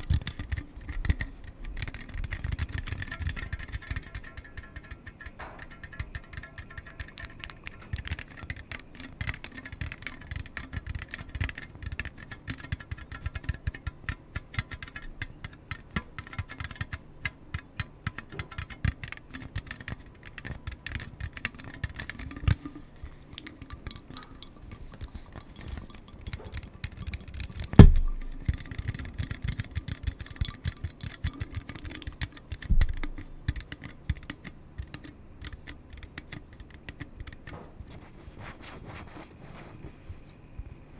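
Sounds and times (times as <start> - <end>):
rapid clicking and tapping: 0.0 - 40.4
knocks: 5.3 - 6.6, 27.8 - 28.6.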